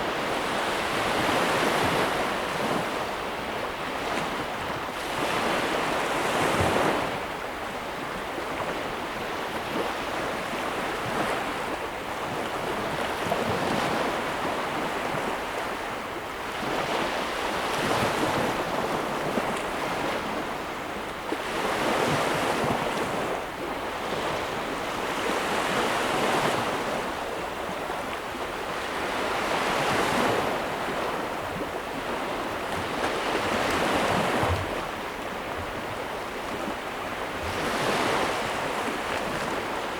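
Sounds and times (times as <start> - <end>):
ocean waves breaking: 28.6 - 39.9.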